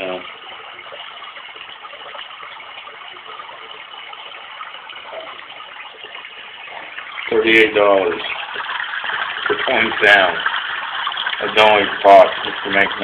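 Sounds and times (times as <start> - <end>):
white noise machine water hiss: 0.0 - 13.0.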